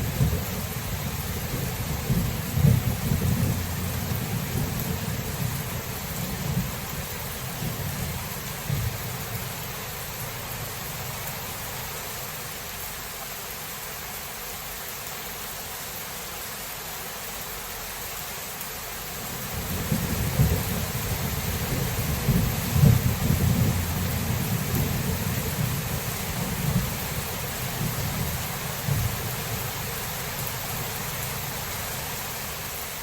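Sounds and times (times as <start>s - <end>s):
thunder rumble: 0.0s - 11.4s, 19.3s - 32.1s
steady rain: 0.0s - 33.0s.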